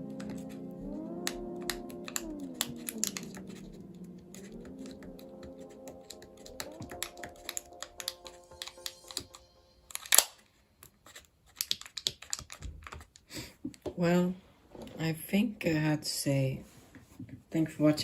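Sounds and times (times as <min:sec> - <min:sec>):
soft background music: 0:00.0 - 0:11.1
small clicks and taps: 0:01.2 - 0:03.7, 0:11.5 - 0:14.0.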